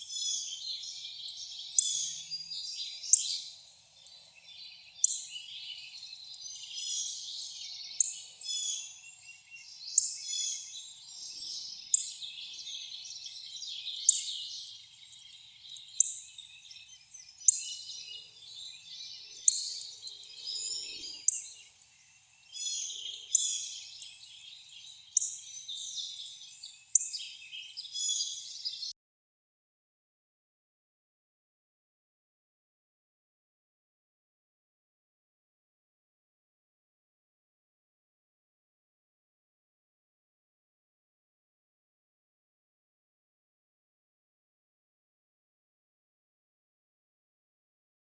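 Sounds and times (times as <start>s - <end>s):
songbirds chirping in chorus: 0.0s - 29.0s.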